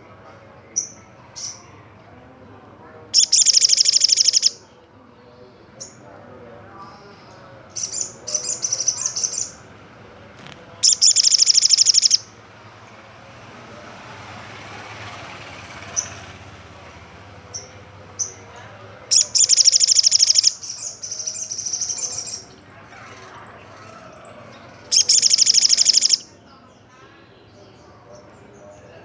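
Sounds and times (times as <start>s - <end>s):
bird trilling song: 3.1s - 4.7s, 7.3s - 9.6s, 10.8s - 12.3s, 19.1s - 23.4s, 24.2s - 26.9s
short bird chips: 3.2s - 4.6s, 10.8s - 12.2s, 19.1s - 22.4s, 24.9s - 26.2s.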